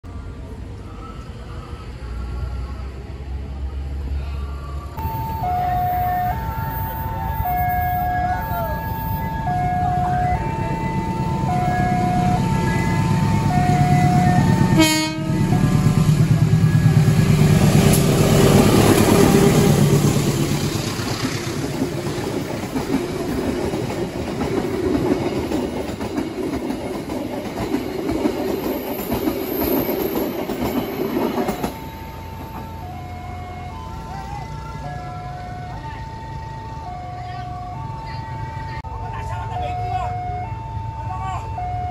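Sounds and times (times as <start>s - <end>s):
level crossing alarm tones: 5.0s - 17.2s, 31.0s - 41.9s
train wheels rumbling on rails: 5.0s - 37.0s.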